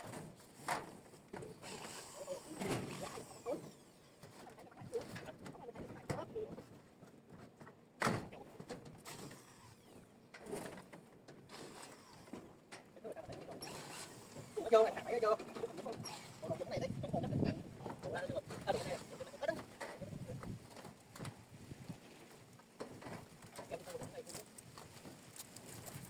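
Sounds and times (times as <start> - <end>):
knocks and scraping from hand work: 0.0 - 1.8.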